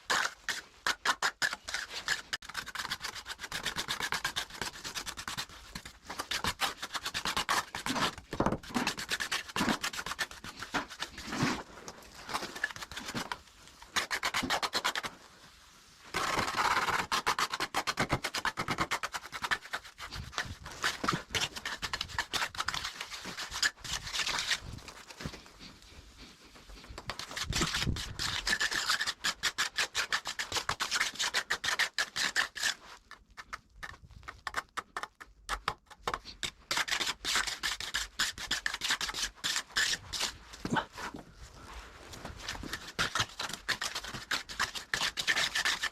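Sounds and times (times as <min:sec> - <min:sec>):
trowel scraping wet mortar: 0:00.0 - 0:15.1, 0:16.2 - 0:24.8, 0:27.0 - 0:32.8, 0:36.3 - 0:41.2, 0:42.2 - 0:45.9.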